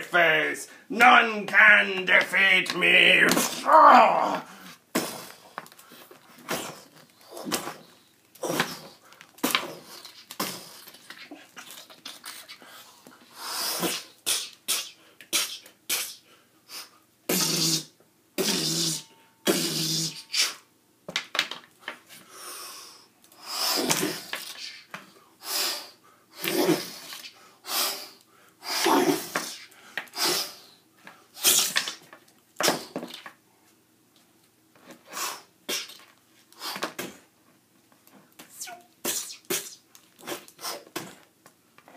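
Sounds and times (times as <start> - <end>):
person making mouth puffs and grunts: 3.3 - 5.6, 6.4 - 12.8, 13.4 - 16.3, 17.3 - 20.6, 23.6 - 24.9, 35.7 - 36.1, 38.4 - 41.2.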